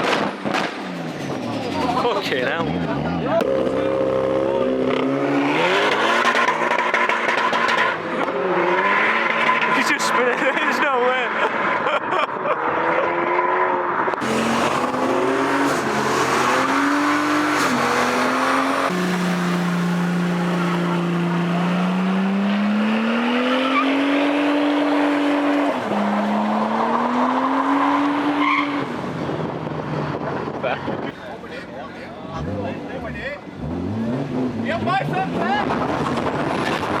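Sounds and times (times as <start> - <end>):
car engine at high revs: 0.0 - 37.0
tyres screeching: 14.2 - 28.9.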